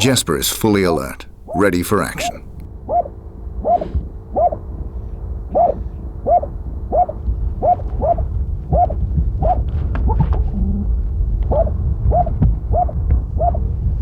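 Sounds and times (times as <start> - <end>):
dog barking: 2.2 - 4.6, 5.5 - 8.2, 11.5 - 13.6.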